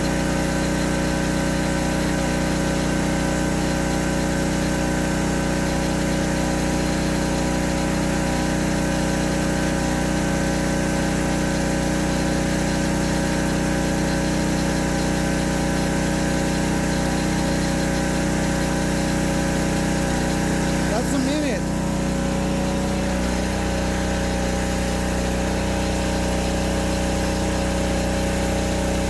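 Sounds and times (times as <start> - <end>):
pressure washer engine running: 0.0 - 29.0.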